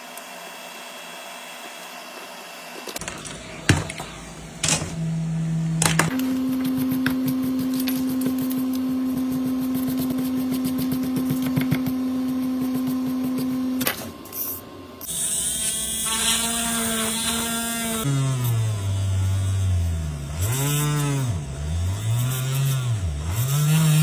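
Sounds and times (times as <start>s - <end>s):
small electric motor whining: 14.4s - 24.0s.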